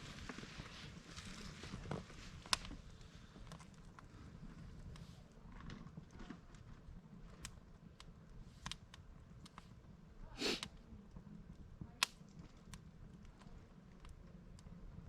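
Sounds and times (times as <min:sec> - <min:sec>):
campfire crackling: 0:00.0 - 0:15.0
low rumble of flames: 0:00.0 - 0:15.0
sharp pops and snaps: 0:02.4 - 0:02.8, 0:07.4 - 0:09.8, 0:10.4 - 0:14.7.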